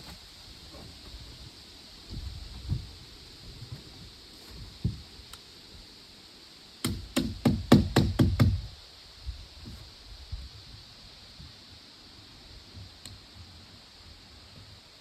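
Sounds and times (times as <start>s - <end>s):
sharp knocking blows: 6.8s - 8.7s.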